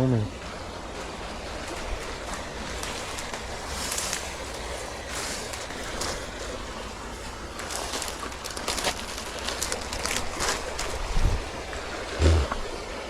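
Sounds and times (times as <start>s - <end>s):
steady background hiss: 0.0s - 13.0s
rustling through wet undergrowth: 0.2s - 13.0s.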